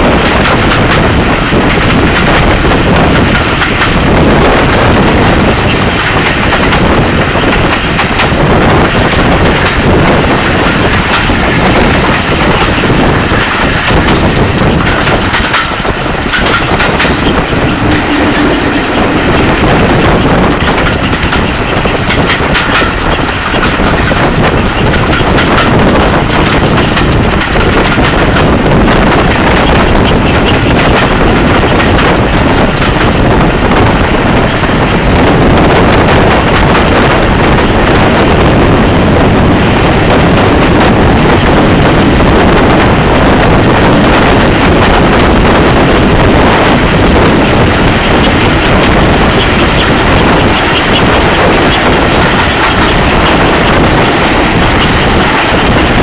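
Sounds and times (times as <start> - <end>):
train coaches running on track: 0.0 - 56.0
wind buffeting microphone: 0.0 - 56.0.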